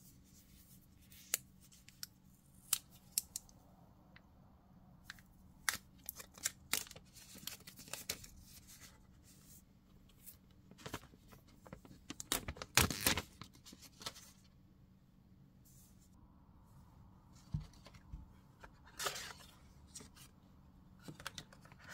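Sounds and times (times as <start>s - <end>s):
plastic film crackling peel: 11.8s - 14.1s.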